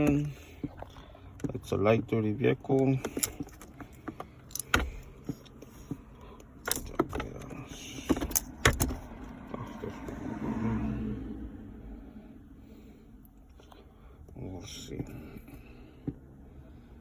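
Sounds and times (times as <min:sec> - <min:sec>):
sharp clicks and knocks: 0:02.7 - 0:09.1.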